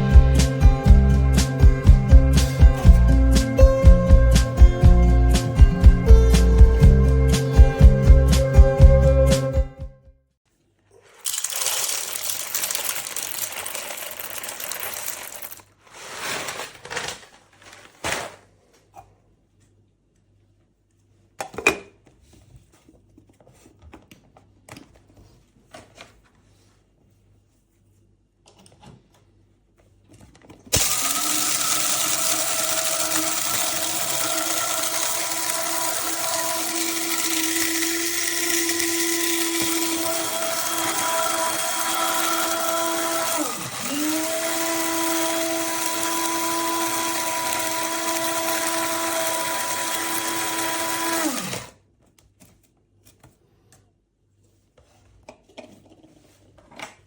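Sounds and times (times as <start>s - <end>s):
coffee grinder motor whining: 11.3s - 15.6s, 30.7s - 51.8s.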